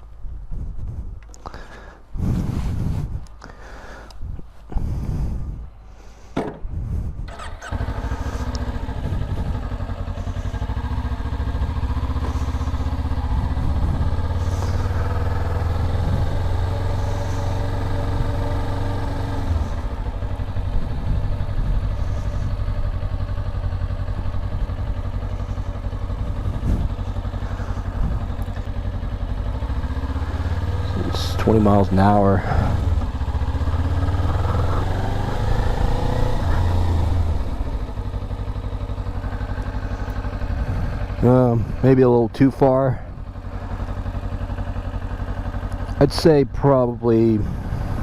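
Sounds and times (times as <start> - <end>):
motorcycle engine starting and running: 4.8 - 48.0
knocks: 6.4 - 6.6.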